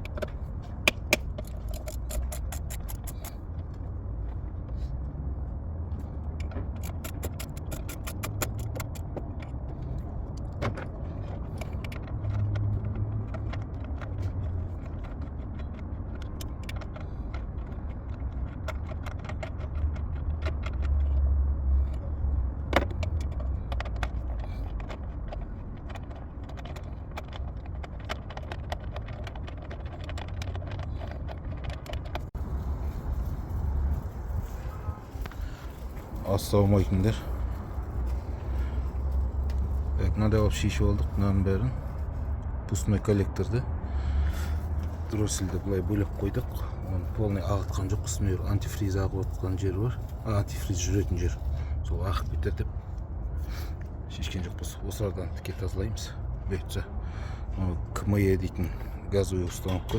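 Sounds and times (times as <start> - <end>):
low rumble: 30.3 - 40.2.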